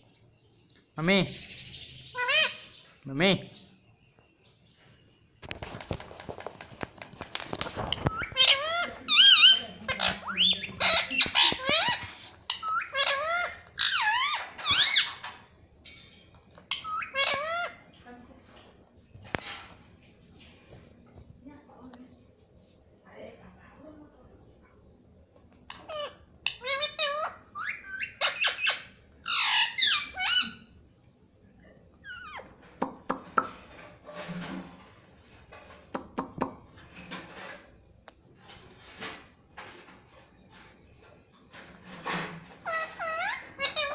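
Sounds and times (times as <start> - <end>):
parakeet squawking and chattering: 1.4 - 2.8, 7.9 - 18.0, 25.6 - 30.8, 32.0 - 32.6, 42.4 - 43.9
parrot making high calls: 8.1 - 15.2, 25.7 - 30.7, 42.6 - 43.9.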